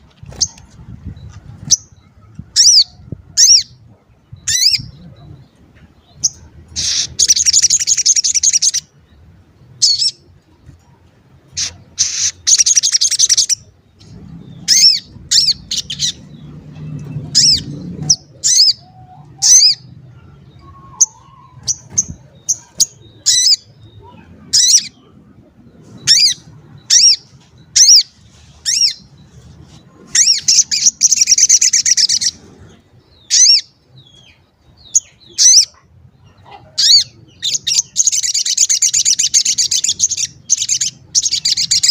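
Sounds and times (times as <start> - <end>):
bird chirps: 11.6 - 41.9.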